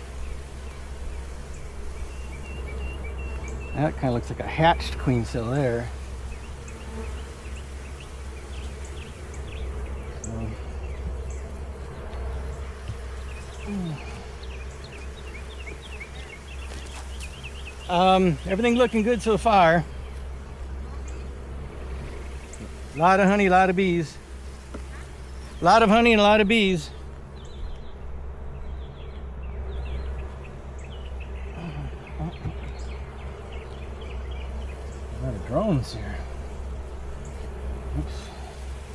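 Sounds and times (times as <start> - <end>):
bee drone falling in pitch: 0.0 - 24.9, 25.6 - 38.9
honeybees buzzing: 0.0 - 38.9.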